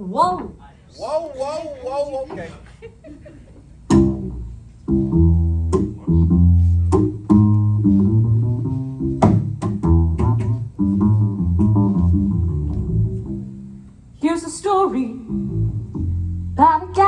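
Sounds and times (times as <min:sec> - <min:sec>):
plucked walking bass line: 0:03.9 - 0:13.8, 0:15.2 - 0:17.0.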